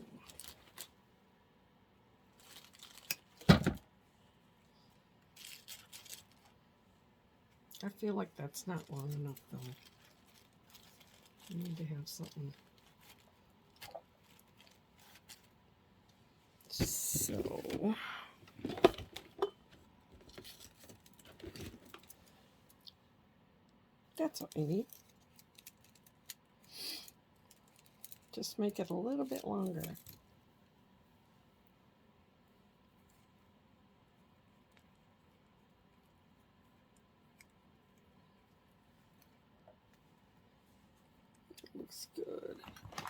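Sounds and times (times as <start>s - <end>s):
artificial flower stems rustling: 0.0s - 1.0s, 2.3s - 3.8s, 4.6s - 6.9s, 7.5s - 15.6s, 16.7s - 22.8s, 24.2s - 30.2s
soft rustling: 8.8s - 17.9s.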